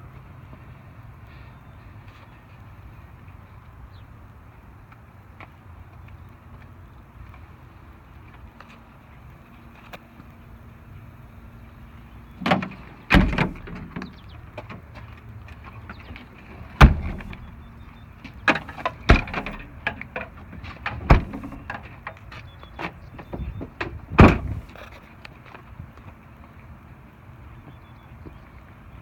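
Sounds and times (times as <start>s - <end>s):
sharp knocks and clunks: 12.4s - 14.8s, 16.8s - 22.2s, 23.2s - 24.8s.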